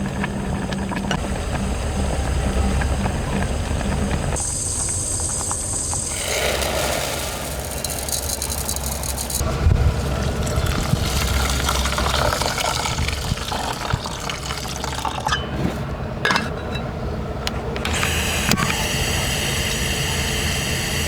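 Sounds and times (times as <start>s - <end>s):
water pouring into container: 6.1s - 15.3s.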